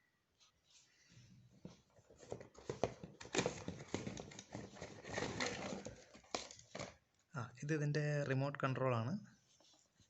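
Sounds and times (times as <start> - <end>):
packaging knocks and rustles: 2.0 - 7.0.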